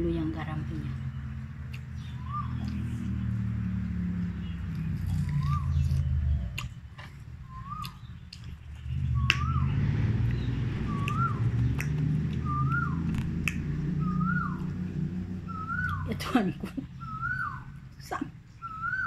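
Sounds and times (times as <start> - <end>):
fruit crunching being chewed: 1.6 - 14.8
bird whistle: 2.0 - 2.7, 7.5 - 8.2, 9.0 - 9.8, 10.4 - 14.8, 15.4 - 16.1, 17.0 - 17.8, 18.6 - 19.0.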